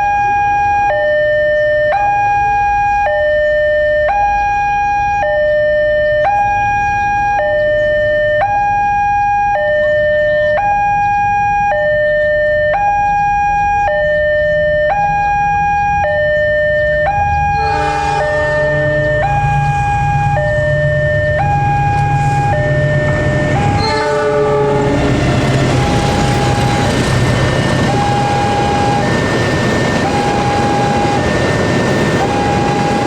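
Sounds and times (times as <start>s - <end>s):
two-tone crossing alarm: 0.0s - 33.0s.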